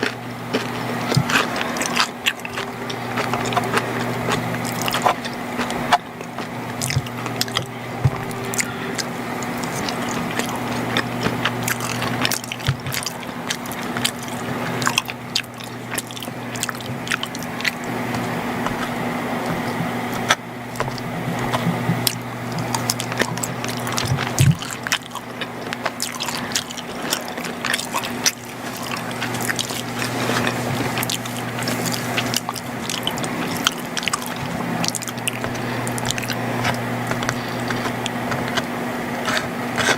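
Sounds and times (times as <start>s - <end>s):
chewing and biting food: 0.0s - 39.9s
low electrical hum: 0.0s - 39.9s
wet mouth clicks: 0.0s - 39.9s.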